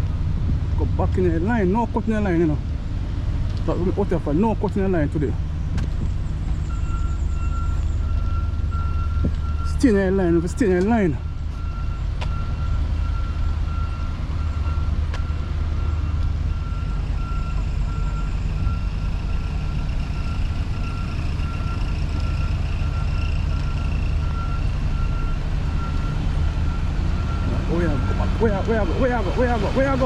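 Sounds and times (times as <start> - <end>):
low rumble of running engine: 0.0 - 30.0
reversing alarm beeping: 6.6 - 30.0.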